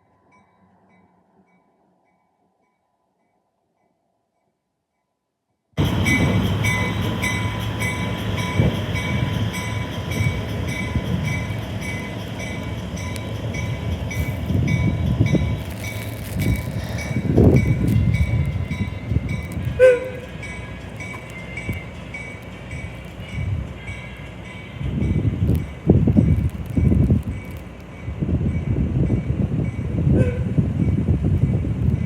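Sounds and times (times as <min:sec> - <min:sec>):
train rumbling: 0:05.8 - 0:32.0.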